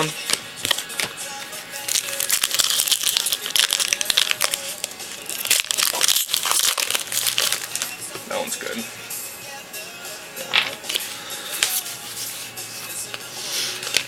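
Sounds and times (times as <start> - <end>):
foil wrapper crinkling and tearing: 1.8 - 8.0.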